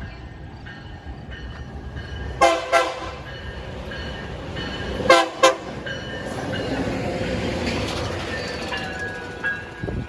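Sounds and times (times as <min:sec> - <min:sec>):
diesel locomotive horn blasts: 0:02.4 - 0:03.3, 0:05.0 - 0:05.8.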